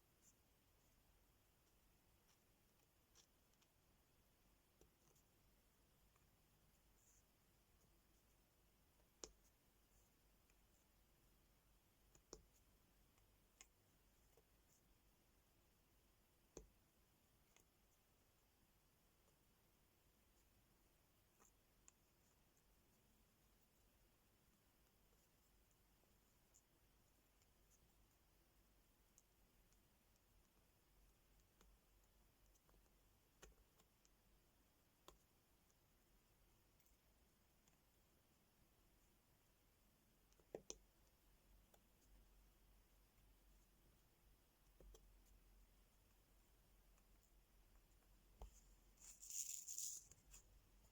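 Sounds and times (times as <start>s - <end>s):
small clicks and taps: 12.0s - 14.8s, 40.2s - 42.3s, 44.6s - 45.4s.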